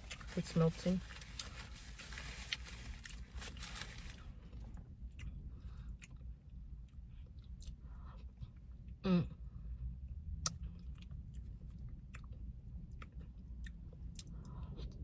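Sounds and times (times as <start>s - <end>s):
person chewing: 5.1s - 8.6s, 10.4s - 15.0s.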